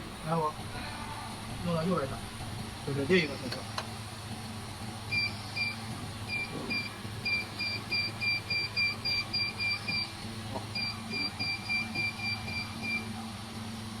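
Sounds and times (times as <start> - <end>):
machine low hum: 0.0 - 14.0.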